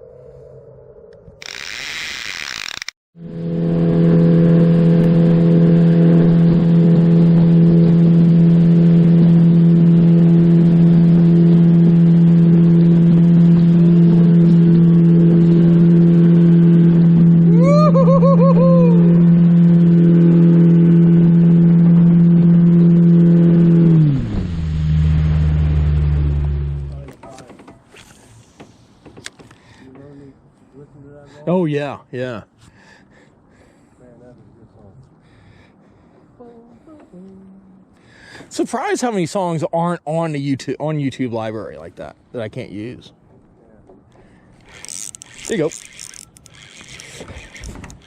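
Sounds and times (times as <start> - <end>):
boat engine running: 1.5 - 30.1, 43.2 - 48.0.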